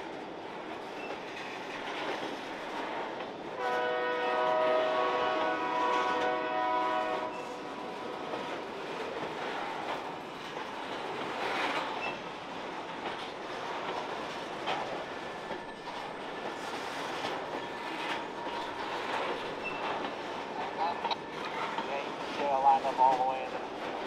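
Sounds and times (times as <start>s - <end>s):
track creaking: 0.0s - 3.7s, 4.4s - 24.0s
locomotive horn chord: 3.6s - 7.6s
freight wheels clattering on track: 8.3s - 24.0s.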